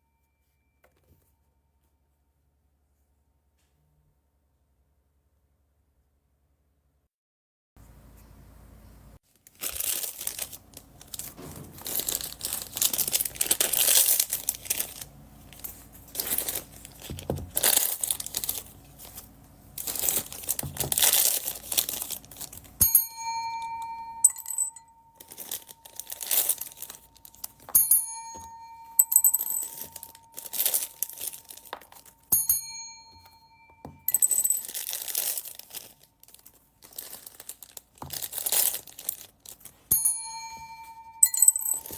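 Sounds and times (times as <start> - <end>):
plastic bags crinkling and tearing: 9.3 - 22.8, 25.2 - 27.7, 29.6 - 32.3, 34.6 - 39.9
bell-like pings: 22.8 - 34.6, 39.9 - 41.9.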